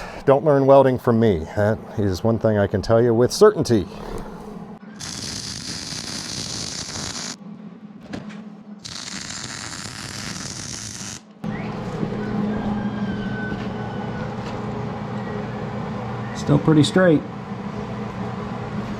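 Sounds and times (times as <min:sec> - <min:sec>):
steady low hum: 0:00.0 - 0:18.9
welder crackling hiss: 0:05.0 - 0:07.4, 0:08.8 - 0:11.3.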